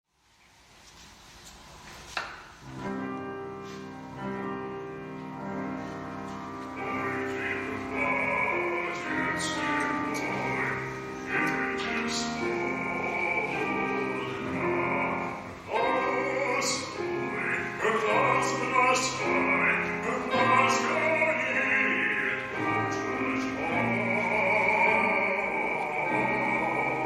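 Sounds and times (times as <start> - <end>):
person singing slowly: 6.8 - 27.0.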